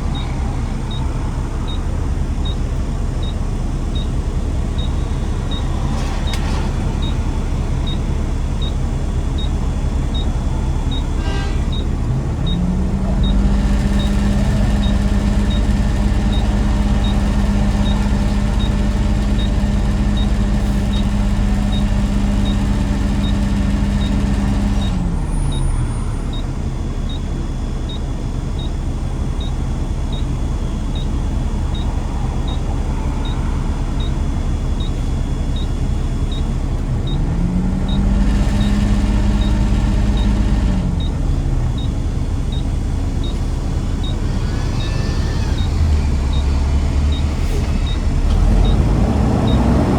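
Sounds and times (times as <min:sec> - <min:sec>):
vehicle engine driving: 0:00.0 - 0:49.9.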